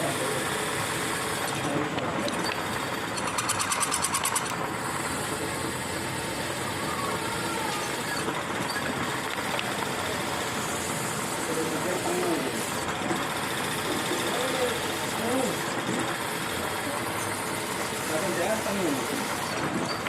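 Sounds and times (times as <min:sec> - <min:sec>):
milling machine running: 0:00.0 - 0:20.0
rapid ticking: 0:01.6 - 0:04.7.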